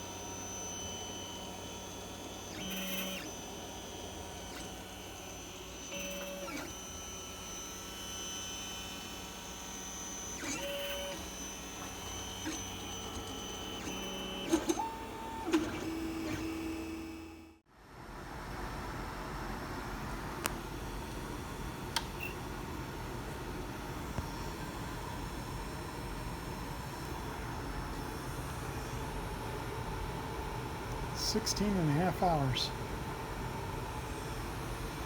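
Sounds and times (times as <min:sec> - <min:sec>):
stepper motors whining: 0:00.1 - 0:17.3
fan hum: 0:26.8 - 0:35.0.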